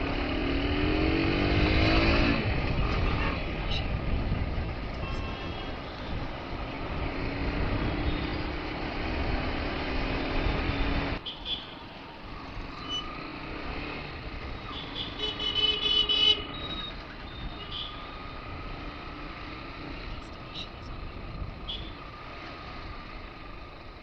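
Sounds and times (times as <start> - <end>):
motorcycle engine and wind rumble: 0.0 - 11.2, 12.0 - 24.0
traffic: 0.0 - 24.0
vehicle horns: 1.6 - 4.0, 4.8 - 7.0, 7.6 - 8.8, 10.7 - 11.8, 14.6 - 18.4, 21.6 - 22.1.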